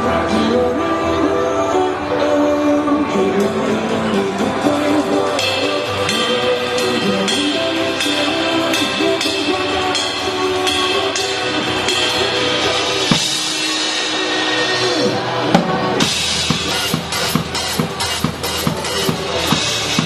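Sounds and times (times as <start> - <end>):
pop backing track: 0.0 - 20.0
drum kit playing: 4.4 - 20.0.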